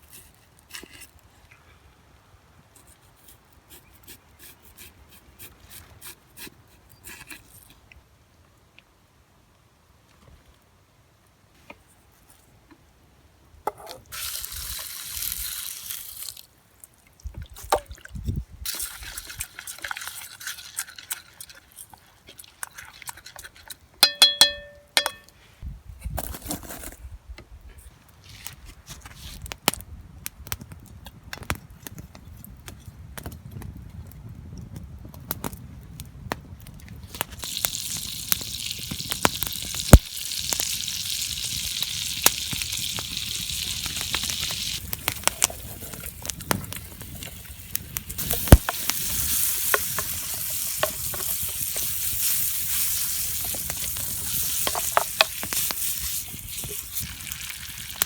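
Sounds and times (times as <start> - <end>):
ringing metal clatter: 24.0 - 25.3
food hissing in a hot pan: 37.4 - 44.8, 48.1 - 58.0.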